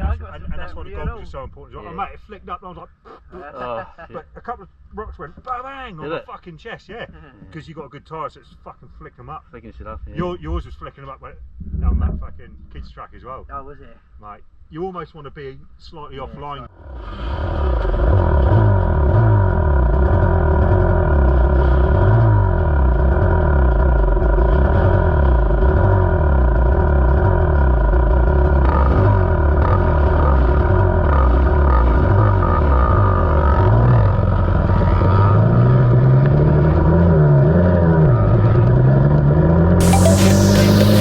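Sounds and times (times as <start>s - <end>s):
dirt bike engine revving: 17.6s - 37.8s.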